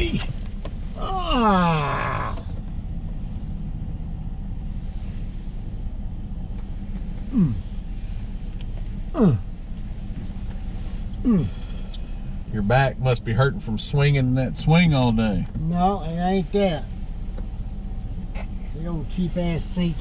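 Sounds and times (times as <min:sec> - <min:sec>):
car engine idling: 0:00.0 - 0:20.0
man groaning: 0:01.0 - 0:02.5, 0:07.3 - 0:07.7, 0:09.2 - 0:09.5, 0:11.2 - 0:11.7.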